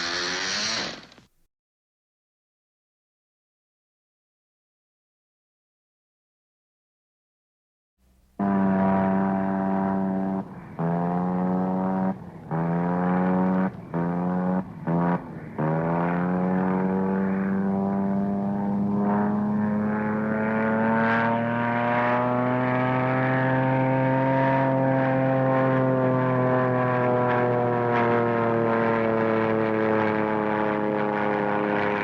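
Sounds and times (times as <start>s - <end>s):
engine sputtering: 0.0s - 1.3s, 8.4s - 32.0s.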